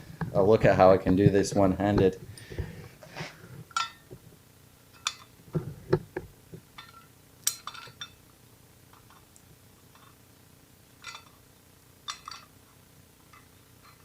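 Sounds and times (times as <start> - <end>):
metal tools clinking on steel: 5.0 - 5.3, 6.8 - 8.2, 11.0 - 11.4, 12.1 - 12.5.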